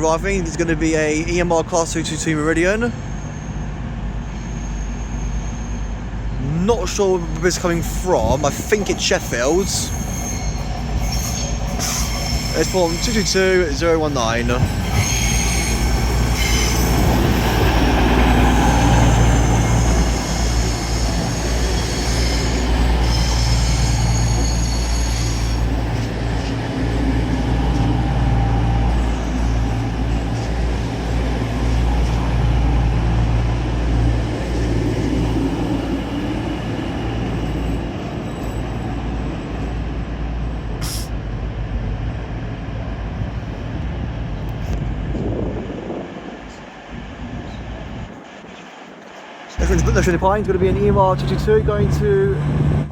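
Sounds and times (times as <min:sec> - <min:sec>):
diesel train engine drone: 0:00.0 - 0:52.9
brake and wheel squeal: 0:02.9 - 0:06.0, 0:09.0 - 0:17.5, 0:18.5 - 0:27.0.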